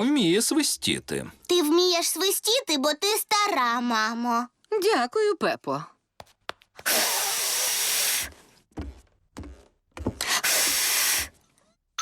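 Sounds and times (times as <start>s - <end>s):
breathy blowing through lips: 6.8s - 8.4s, 10.2s - 11.4s.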